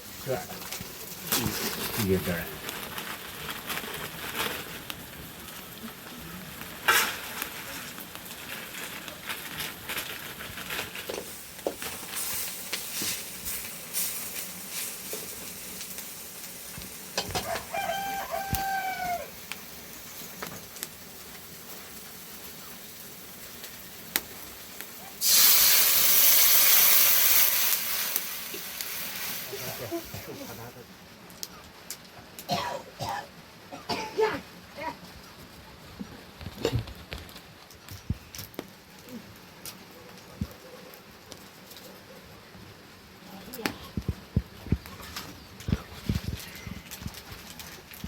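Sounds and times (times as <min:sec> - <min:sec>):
loud steady hiss: 0:00.0 - 0:31.2
rooster crowing: 0:17.2 - 0:19.4
clicks and rustling: 0:43.6 - 0:48.0.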